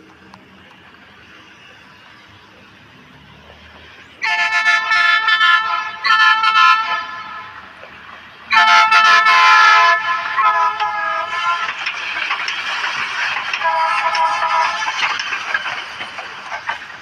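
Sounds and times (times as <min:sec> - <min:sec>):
train horn blasts: 0:04.2 - 0:07.7, 0:08.5 - 0:11.8, 0:13.6 - 0:14.9.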